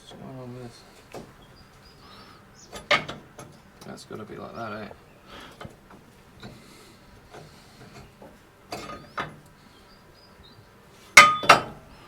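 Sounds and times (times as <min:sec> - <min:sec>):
light tapping and handling: 0:00.0 - 0:01.9
loud metal clanks: 0:02.7 - 0:04.0, 0:07.3 - 0:09.5, 0:11.1 - 0:11.9.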